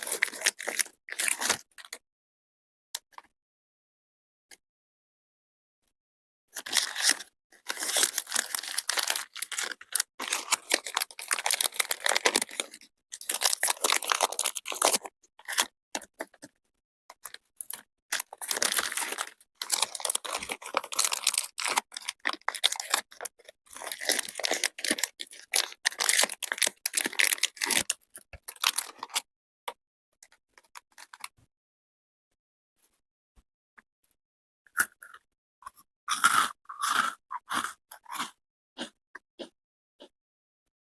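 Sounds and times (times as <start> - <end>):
chewing crunchy chocolate: 6.6 - 16.5, 17.1 - 29.2, 34.7 - 40.1.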